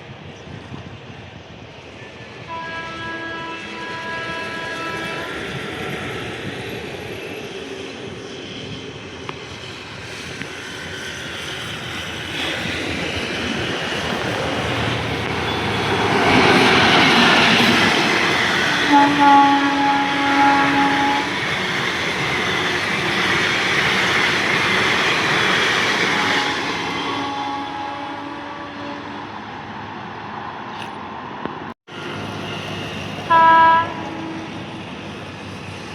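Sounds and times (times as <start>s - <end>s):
train passing: 0.0s - 35.9s
locomotive horn: 2.5s - 5.4s, 18.9s - 21.5s, 26.0s - 29.3s, 33.3s - 34.6s.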